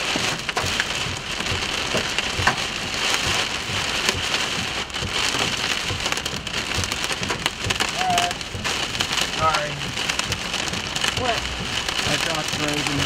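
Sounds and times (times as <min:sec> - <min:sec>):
heavy rain on vehicle: 0:00.0 - 0:13.0
raindrops ticking on glass: 0:00.0 - 0:13.0.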